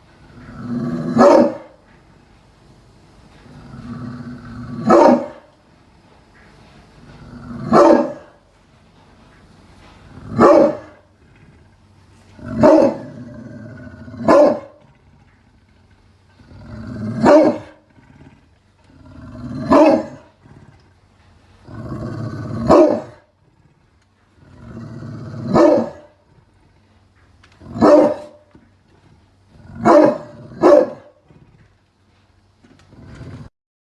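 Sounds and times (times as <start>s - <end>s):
dog growling: 0.2s - 2.1s, 3.3s - 5.7s, 7.0s - 8.5s, 9.1s - 33.5s
dog barking: 1.2s - 1.8s, 4.8s - 5.5s, 7.7s - 8.3s, 10.4s - 11.0s, 12.6s - 13.0s, 14.2s - 14.8s, 17.2s - 17.8s, 19.7s - 20.2s, 22.6s - 23.2s, 25.5s - 26.1s, 27.8s - 28.4s, 29.8s - 31.1s.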